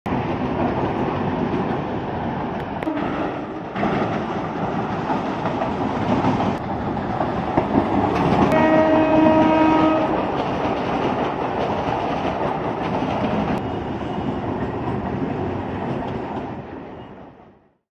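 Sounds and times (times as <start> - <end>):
electric trains passing: 0.1 - 17.8
train horn: 2.8 - 3.6, 8.4 - 10.3.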